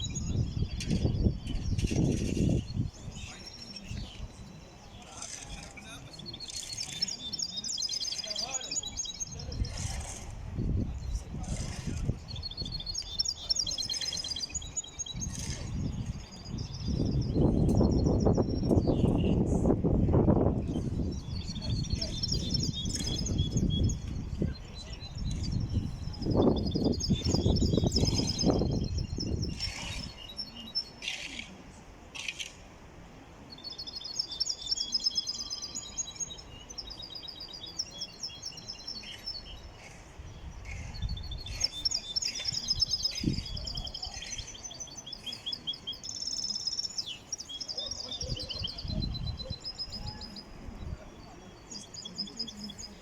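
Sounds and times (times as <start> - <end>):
finch singing high trills: 20.8 - 31.4, 33.5 - 53.0.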